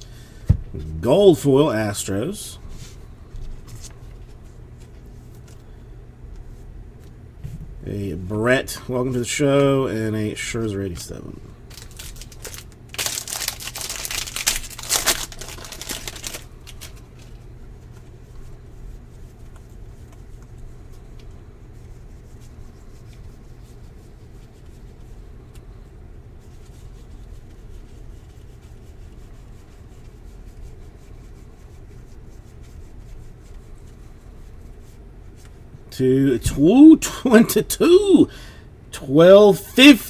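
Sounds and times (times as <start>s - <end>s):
steady low hum: 0.0s - 31.7s, 33.0s - 40.0s
foil pack rustling: 11.6s - 17.4s
cards being handled: 11.7s - 17.4s.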